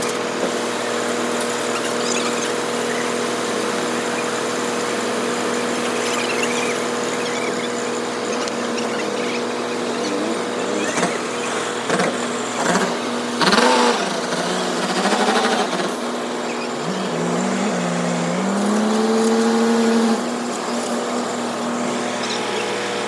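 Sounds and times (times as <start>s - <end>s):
engine revving up: 0.0s - 23.0s
road traffic hum: 0.0s - 23.0s.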